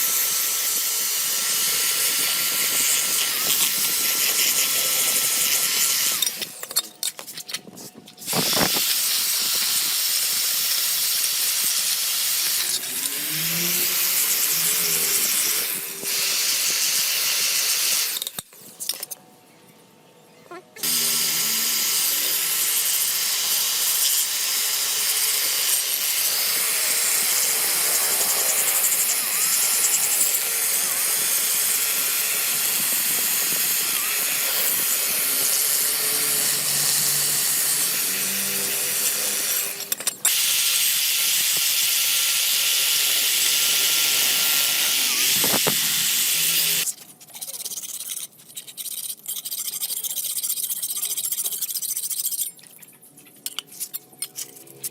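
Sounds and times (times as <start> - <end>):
electric grinder on metal: 0.0 - 7.2, 8.2 - 18.4, 20.8 - 46.9.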